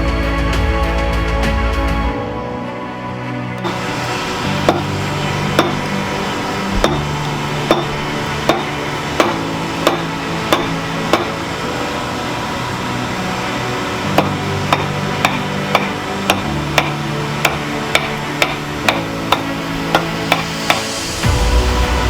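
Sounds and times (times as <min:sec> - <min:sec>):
hammer striking metal on anvil: 0:03.6 - 0:11.5, 0:14.1 - 0:21.2.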